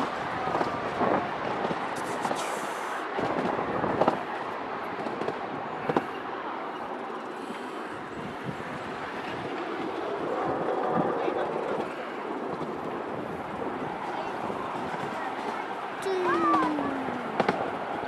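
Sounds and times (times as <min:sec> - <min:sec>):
small train rumbling on track: 0:00.0 - 0:18.0
train wheels clicking and knocking: 0:04.9 - 0:06.2, 0:16.4 - 0:17.8.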